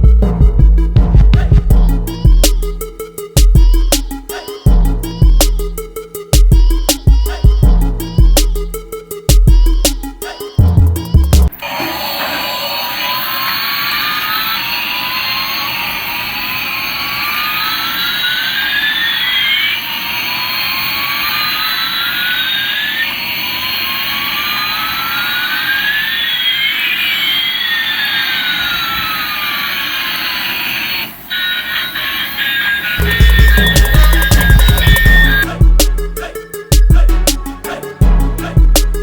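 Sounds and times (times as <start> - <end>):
rising jet whine: 11.5 - 31.3, 32.7 - 36.8
toy jet engine hiss: 11.6 - 35.5.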